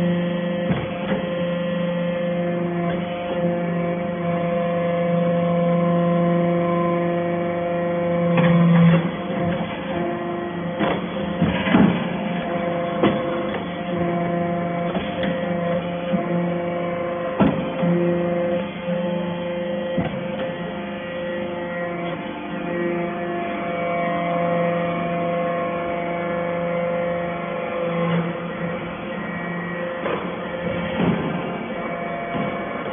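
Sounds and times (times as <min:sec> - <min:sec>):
hydraulic baler humming: 0:00.0 - 0:32.9
sharp knocks: 0:17.4 - 0:17.8.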